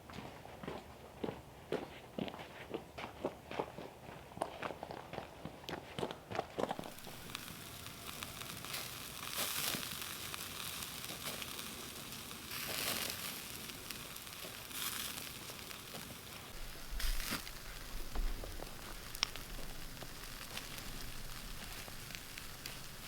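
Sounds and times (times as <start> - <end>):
hissing noise: 6.8 - 23.0
footsteps: 12.6 - 23.0.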